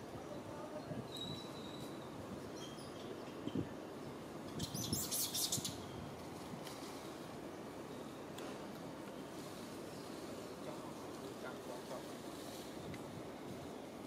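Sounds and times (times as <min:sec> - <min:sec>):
small birds chirping: 0:00.2 - 0:06.0
crackling rustle: 0:04.6 - 0:14.0.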